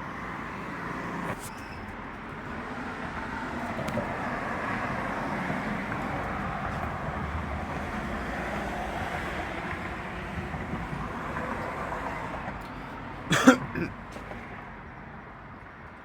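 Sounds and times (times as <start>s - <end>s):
outdoor background noise: 0.0s - 16.0s
person coughing: 13.3s - 14.0s.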